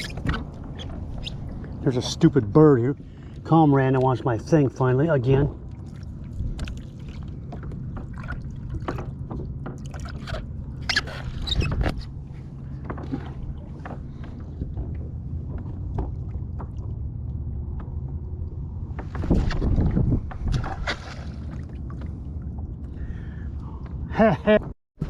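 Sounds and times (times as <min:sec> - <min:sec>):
wind and water rumble: 0:00.0 - 0:24.8
clicks and knocks on boat: 0:06.4 - 0:22.9
splashy scrapes: 0:19.1 - 0:22.0.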